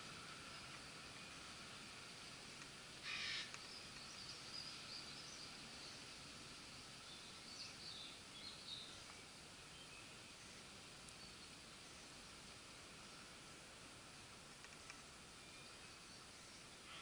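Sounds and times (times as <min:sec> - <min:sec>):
steady hiss: 0:00.0 - 0:17.0
faint bird calls: 0:03.0 - 0:06.1, 0:14.6 - 0:17.0.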